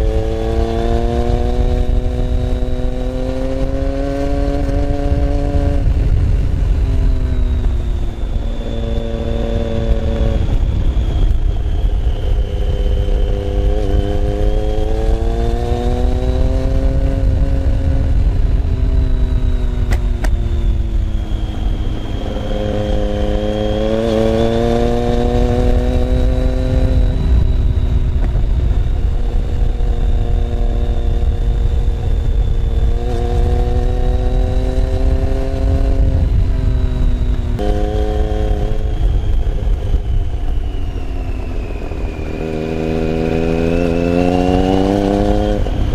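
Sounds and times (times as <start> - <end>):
motorcycle engine revving: 0.0 - 45.9
heavy low rumble: 4.9 - 14.0, 25.5 - 34.3, 35.2 - 45.9.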